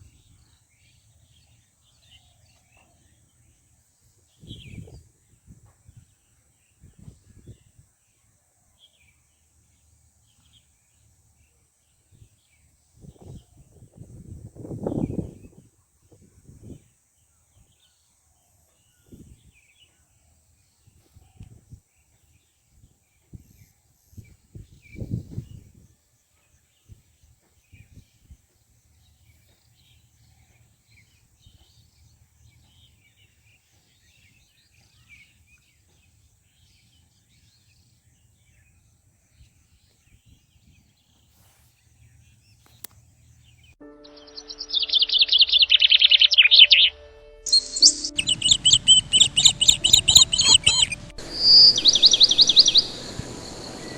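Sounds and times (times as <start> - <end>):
dense chorus of bird chirping: 0.0 - 53.9
faint bird chirps: 23.2 - 53.9
steady low tones: 43.8 - 53.9.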